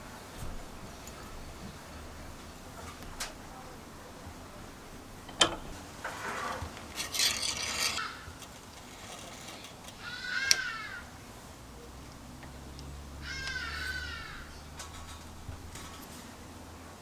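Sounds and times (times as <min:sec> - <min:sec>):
hand rubbing on a tool: 0:06.1 - 0:10.6.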